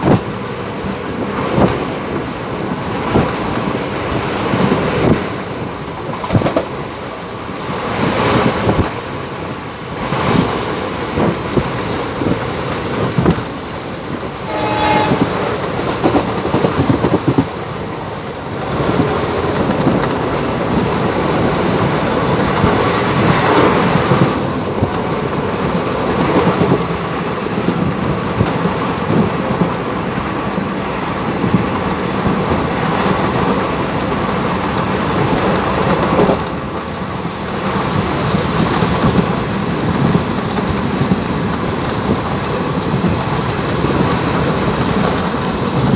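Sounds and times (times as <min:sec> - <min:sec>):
train wheels clattering on rails: 0:00.0 - 0:45.9
train horn: 0:14.4 - 0:15.6.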